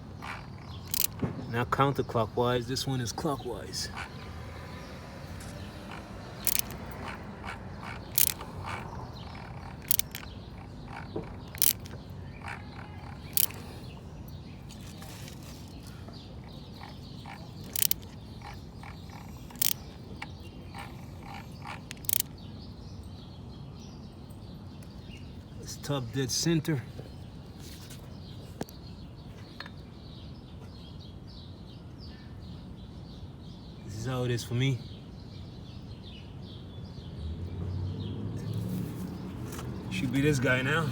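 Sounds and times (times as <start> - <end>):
sharp metal clicks: 0.2 - 1.5, 3.9 - 14.0, 16.4 - 22.4.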